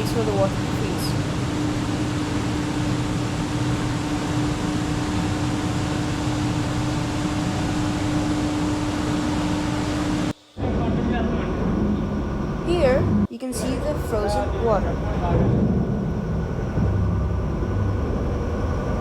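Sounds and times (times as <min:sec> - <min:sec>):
machinery humming: 0:00.0 - 0:19.0.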